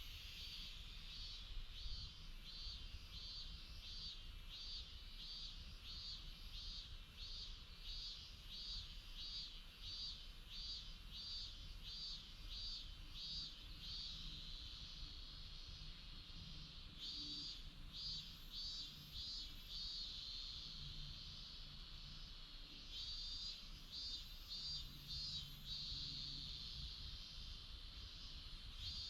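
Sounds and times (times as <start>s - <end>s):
insect chirping: 0.0s - 29.0s.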